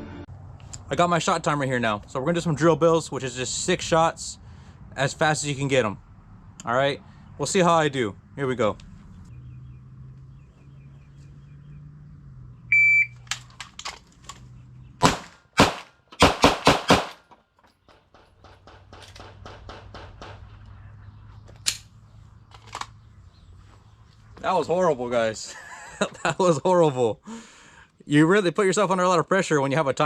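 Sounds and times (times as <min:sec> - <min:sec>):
shot timer beep: 0:12.7 - 0:13.2
pistol shots: 0:15.0 - 0:17.2.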